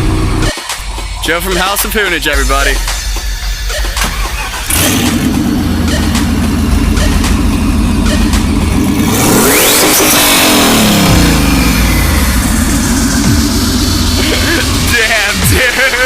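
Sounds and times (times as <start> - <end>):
car engine under acceleration: 4.4 - 15.9.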